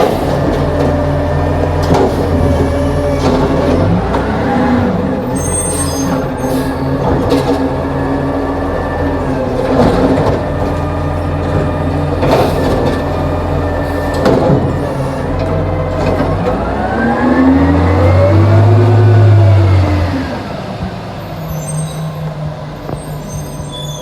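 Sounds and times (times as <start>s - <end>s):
metal clanks and knocks: 0.0s - 4.3s, 9.6s - 13.3s, 14.0s - 16.6s
diesel engine running: 0.0s - 23.6s.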